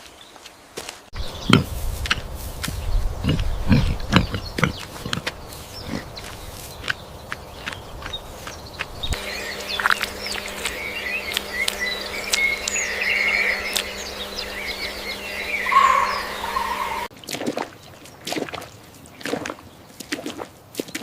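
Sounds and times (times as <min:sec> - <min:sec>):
small birds chirping: 0:00.0 - 0:17.1
steady low hum: 0:01.2 - 0:17.1.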